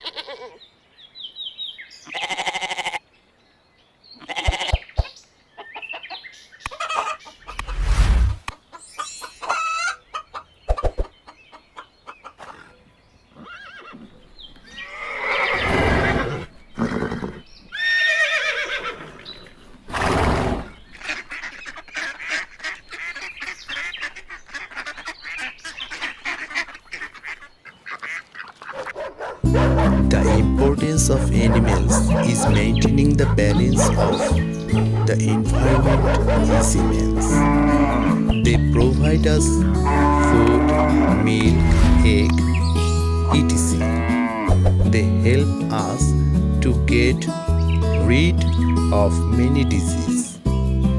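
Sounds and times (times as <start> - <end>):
farm animal and fowl calls: 0.0 - 0.6, 2.0 - 3.1, 4.2 - 7.8, 8.5 - 42.2.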